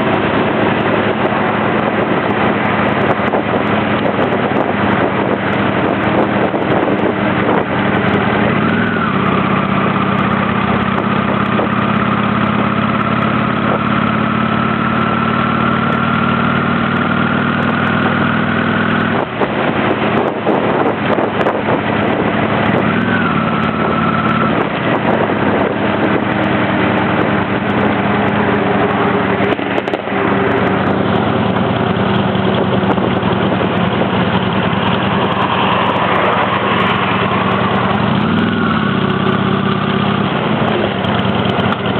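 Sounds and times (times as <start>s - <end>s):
motorcycle engine running: 0.0s - 41.9s
wind rushing: 19.1s - 39.0s.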